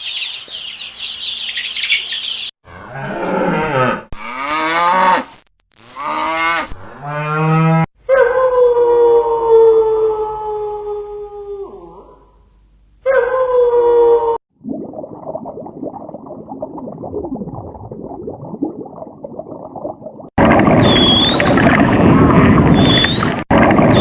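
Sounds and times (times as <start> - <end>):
cattle mooing: 2.6 - 5.2, 5.9 - 7.9.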